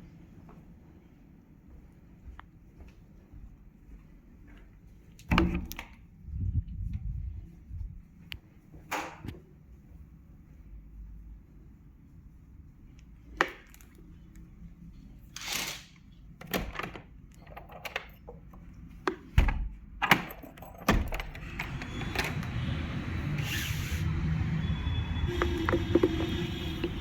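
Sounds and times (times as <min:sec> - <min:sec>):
steady low rumble: 0:06.1 - 0:08.4.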